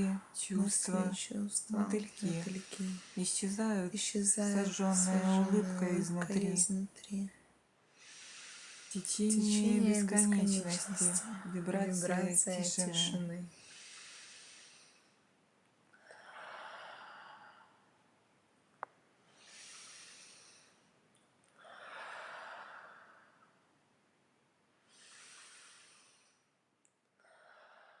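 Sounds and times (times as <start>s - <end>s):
slow breathing: 1.9s - 6.2s, 7.9s - 15.3s, 15.9s - 18.0s, 19.2s - 20.9s, 21.6s - 23.7s, 24.8s - 26.6s, 27.2s - 28.0s.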